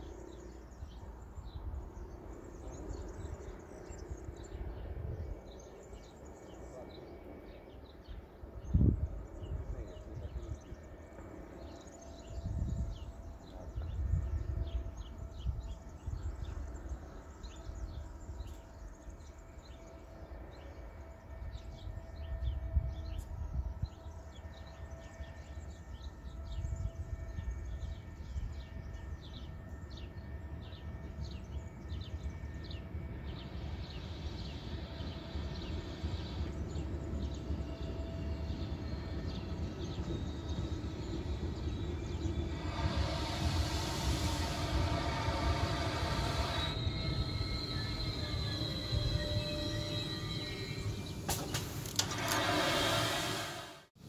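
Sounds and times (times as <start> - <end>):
electric train approaching: 0.0 - 54.0.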